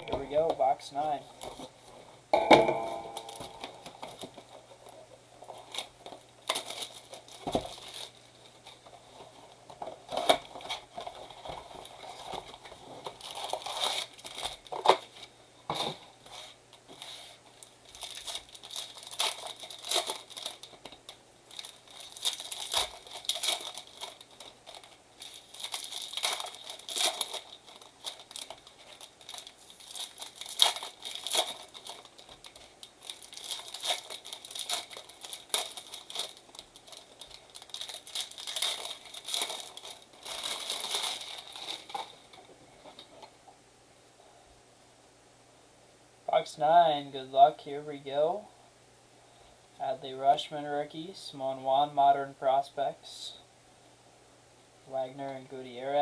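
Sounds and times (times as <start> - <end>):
plastic wrapping crinkling and tearing: 3.0 - 43.3.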